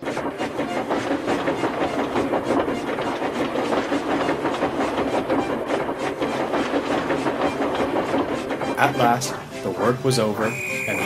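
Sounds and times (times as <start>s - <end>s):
steam train clacking and chuffing: 0.0s - 11.0s.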